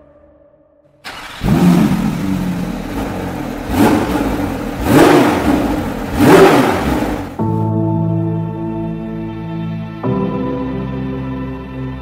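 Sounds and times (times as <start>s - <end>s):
car engine revving: 1.0s - 7.6s.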